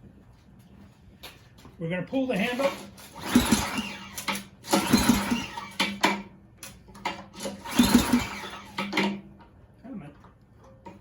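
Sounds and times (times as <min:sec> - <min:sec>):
recoil starter rope whirring: 0:02.5 - 0:06.2, 0:07.1 - 0:09.2.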